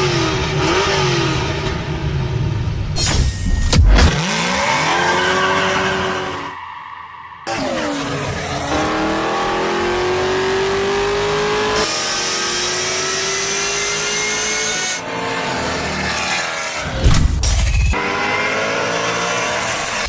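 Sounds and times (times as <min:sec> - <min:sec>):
car engine accelerating hard: 0:07.5 - 0:16.9, 0:18.0 - 0:20.0.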